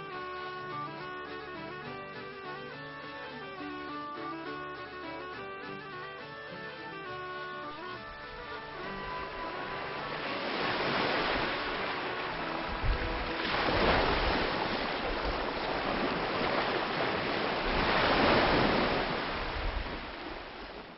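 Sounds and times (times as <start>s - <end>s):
rushing water: 0.0s - 20.9s
wind noise: 8.2s - 20.9s.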